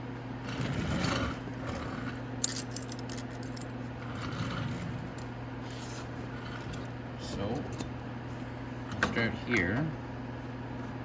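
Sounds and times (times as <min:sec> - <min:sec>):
steady low hum: 0:00.0 - 0:11.0
metal bolts and tools clinking: 0:02.4 - 0:03.7.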